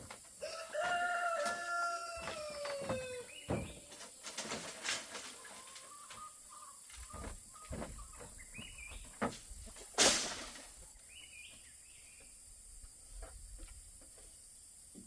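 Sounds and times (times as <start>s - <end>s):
rooster crowing: 0.4s - 3.4s.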